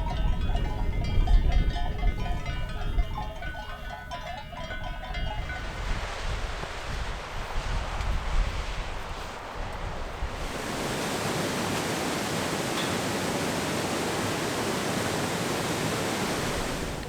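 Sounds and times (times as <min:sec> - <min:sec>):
animal bells clinking: 0:00.0 - 0:06.0, 0:12.6 - 0:13.3
low wind rumble on microphone: 0:00.0 - 0:17.0
steady rushing noise: 0:07.0 - 0:17.0.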